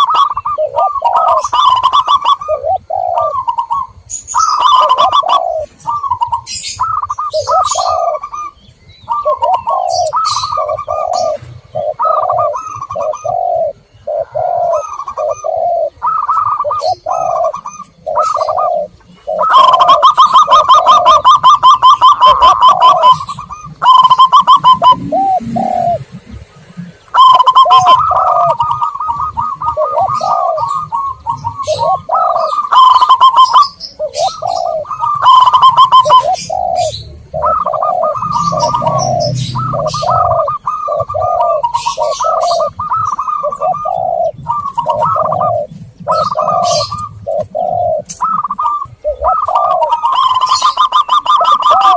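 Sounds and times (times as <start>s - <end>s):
doves cooing: 0.0s - 51.9s.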